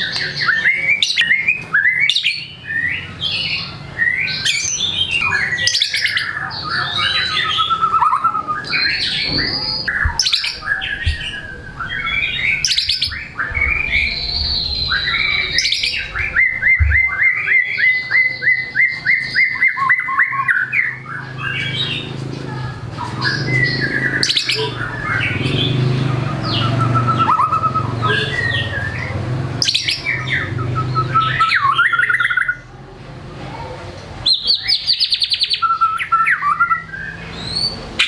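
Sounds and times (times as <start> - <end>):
songbird whistling and chattering: 0.0 - 32.6, 34.2 - 38.0
bird rising notes: 7.6 - 18.4.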